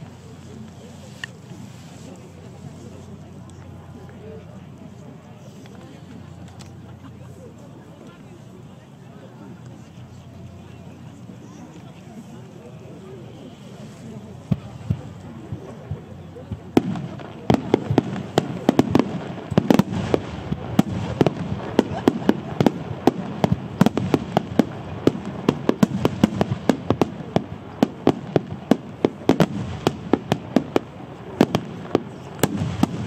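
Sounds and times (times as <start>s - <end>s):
fireworks launching and bursting: 16.5s - 33.0s.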